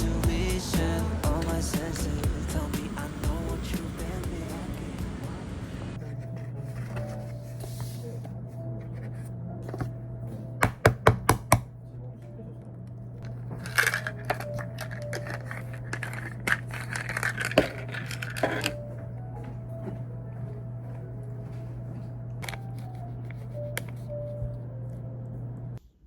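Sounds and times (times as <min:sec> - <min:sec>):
steady low hum: 0:00.0 - 0:10.6, 0:11.6 - 0:26.0
objects crinkling and scraping: 0:06.0 - 0:10.5, 0:13.2 - 0:25.0.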